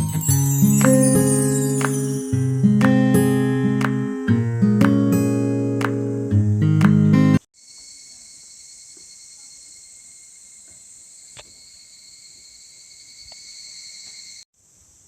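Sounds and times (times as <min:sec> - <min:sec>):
insects trilling: 0:07.6 - 0:15.0.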